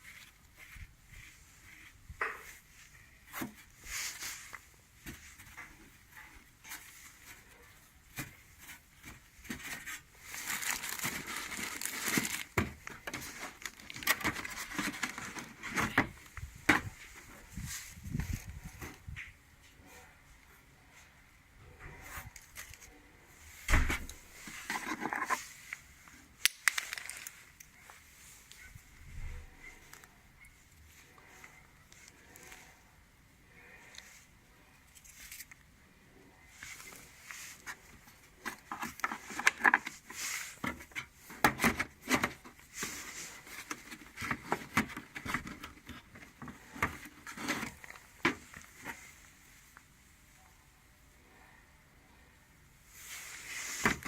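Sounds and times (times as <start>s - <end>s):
rustling: 0.0s - 19.4s, 21.9s - 32.9s, 36.4s - 50.2s, 52.9s - 54.0s.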